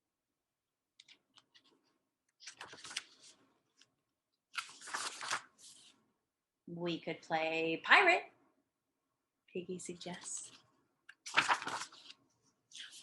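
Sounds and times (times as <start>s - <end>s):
paper rustling: 1.0s - 6.0s, 10.2s - 13.0s.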